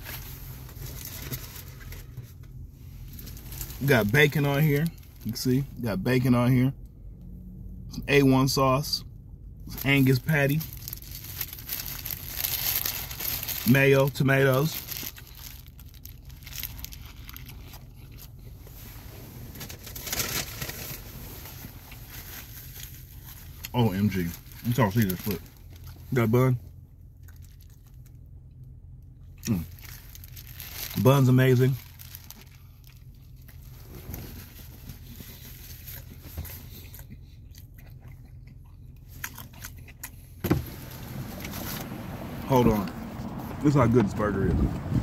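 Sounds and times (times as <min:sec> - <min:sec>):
low steady hum: 0:00.0 - 0:45.0
paper wrapper rustling: 0:10.6 - 0:13.8, 0:14.5 - 0:17.9, 0:19.4 - 0:23.6, 0:29.7 - 0:36.7
person chewing: 0:35.0 - 0:40.4.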